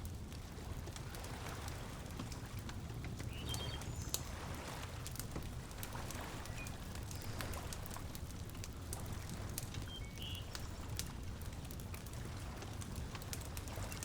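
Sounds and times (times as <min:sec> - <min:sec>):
wood fire crackling and popping: 0:00.0 - 0:14.0
bird chirps: 0:03.3 - 0:04.2, 0:09.9 - 0:10.6.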